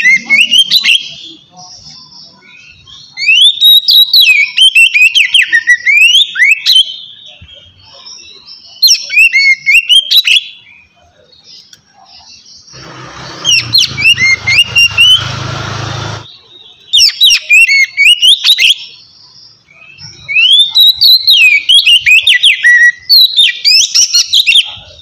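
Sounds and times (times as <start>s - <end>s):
bird singing whistled phrases: 0.0s - 7.7s, 8.4s - 10.6s, 13.5s - 15.2s, 16.7s - 18.9s, 19.7s - 24.8s.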